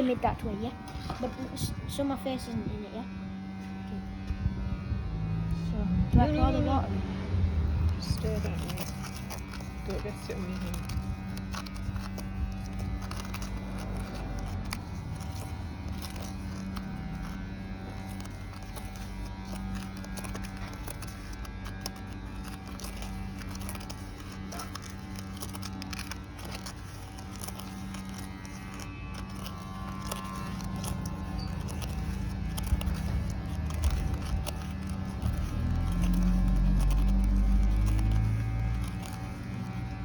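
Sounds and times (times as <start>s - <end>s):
low steady hum: 0.0s - 40.0s
spoon stirring wet mixture: 8.6s - 39.5s.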